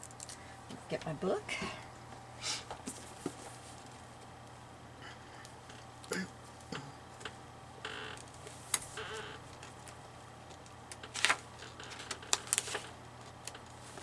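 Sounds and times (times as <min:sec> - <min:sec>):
paper rustling: 0:09.6 - 0:14.0.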